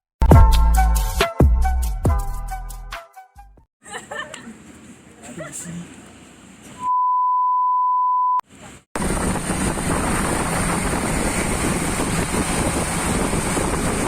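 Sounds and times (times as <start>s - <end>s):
high beep tone: 6.8s - 8.4s
wind rushing over microphone: 9.0s - 14.0s.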